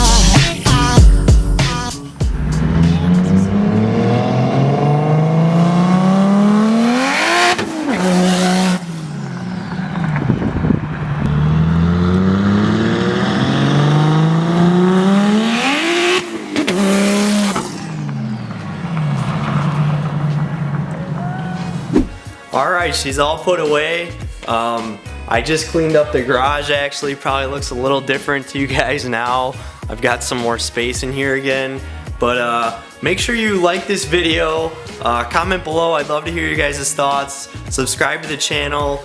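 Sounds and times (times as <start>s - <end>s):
car engine full-throttle acceleration: 0.0s - 22.3s.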